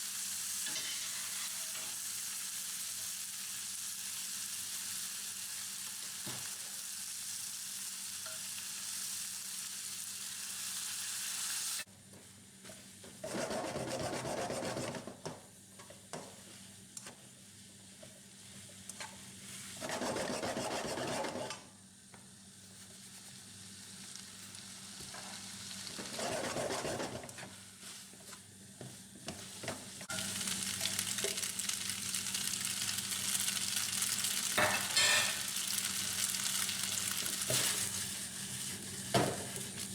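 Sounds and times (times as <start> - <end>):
food sizzling in a pan: 0.0 - 11.9, 22.4 - 26.2, 27.4 - 39.9.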